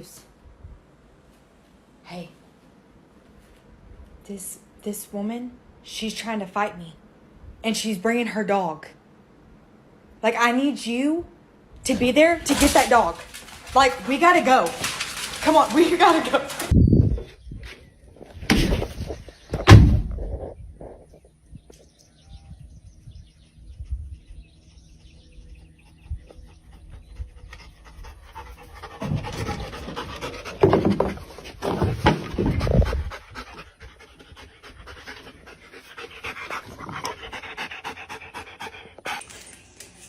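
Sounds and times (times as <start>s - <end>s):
dog panting: 25.8s - 31.2s, 32.4s - 39.3s.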